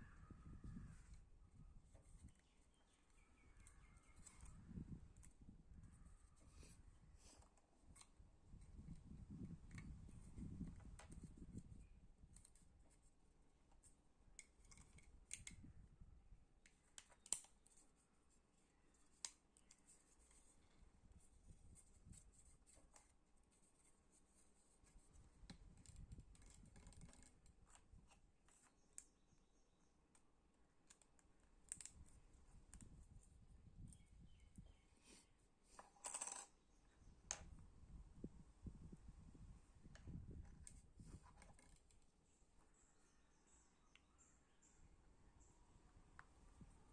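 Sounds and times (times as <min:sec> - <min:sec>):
plastic parts clicking and scraping: 0:13.7 - 0:15.7, 0:24.8 - 0:29.1, 0:35.7 - 0:36.6, 0:39.9 - 0:42.1.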